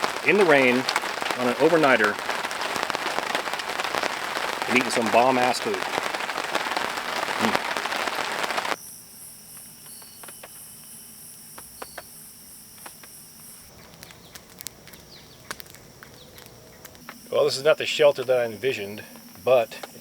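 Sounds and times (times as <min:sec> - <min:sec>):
rain hissing and pattering: 0:00.0 - 0:08.8, 0:09.6 - 0:10.8
water dripping: 0:00.0 - 0:08.8, 0:12.8 - 0:17.6
insects trilling: 0:00.0 - 0:20.0.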